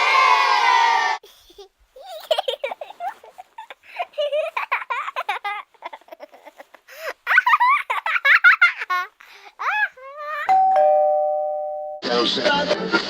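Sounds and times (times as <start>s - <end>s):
high-pitched voice giggling: 1.3s - 10.5s.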